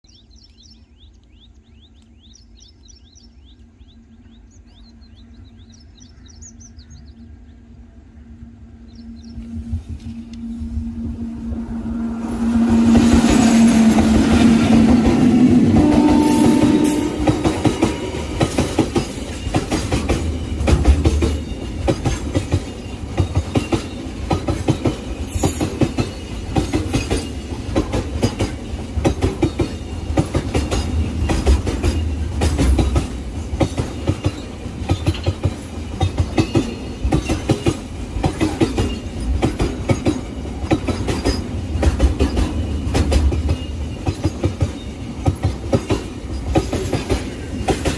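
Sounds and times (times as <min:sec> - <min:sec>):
train wheels clattering over rails: 0:12.4 - 0:47.9.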